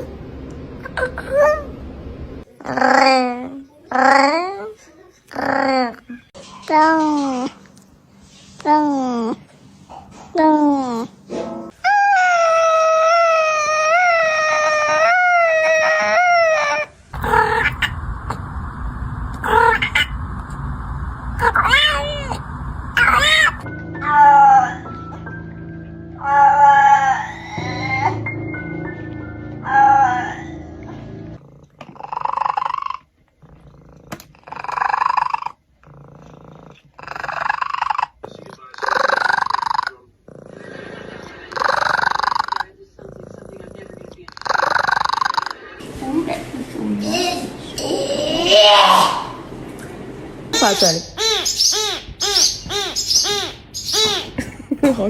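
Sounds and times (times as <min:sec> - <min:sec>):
rumbling background: 0:16.6 - 0:32.4
cat low rumbling purr: 0:17.2 - 0:23.7, 0:30.9 - 0:45.6
cat yowling: 0:21.4 - 0:24.9
cat rolling purr-like calls: 0:31.4 - 0:45.6.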